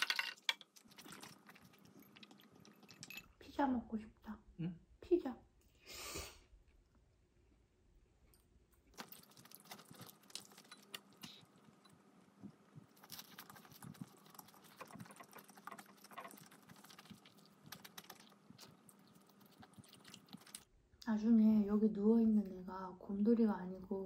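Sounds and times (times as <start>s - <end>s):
chewing crunchy food: 0.8s - 3.1s, 8.8s - 11.9s, 12.8s - 20.7s.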